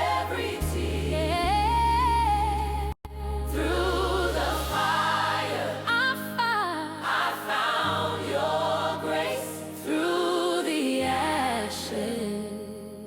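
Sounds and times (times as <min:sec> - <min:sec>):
held low bass notes: 0:00.0 - 0:04.7
choir singing slow melody: 0:00.0 - 0:13.0.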